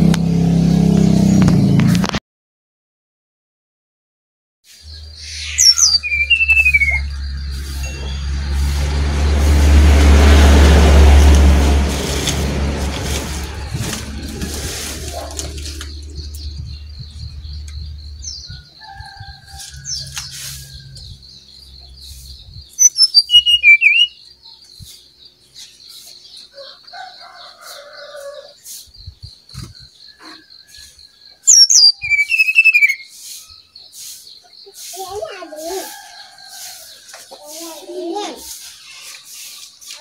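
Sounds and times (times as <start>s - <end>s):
passing vehicle rumble: 0.0s - 2.1s, 4.9s - 22.6s
bird singing quick clear notes: 4.8s - 8.2s, 22.8s - 24.2s, 31.5s - 33.0s
steady high trill: 5.0s - 17.4s.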